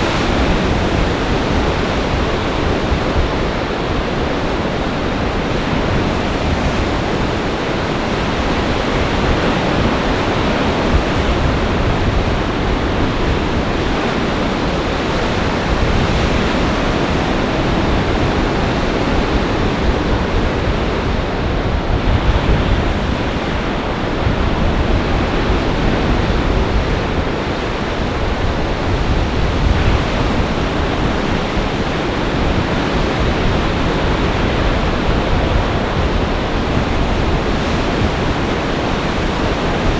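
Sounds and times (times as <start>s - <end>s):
breaking waves: 0.0s - 21.3s
wind buffeting microphone: 0.0s - 39.9s.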